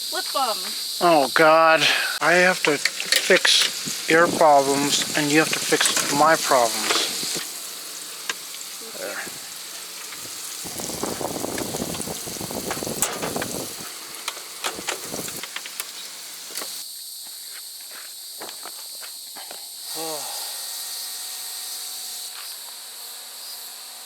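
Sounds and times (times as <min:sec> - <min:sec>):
burger patties sizzling: 0:00.3 - 0:16.8
spatula clicking and scraping: 0:02.3 - 0:07.5.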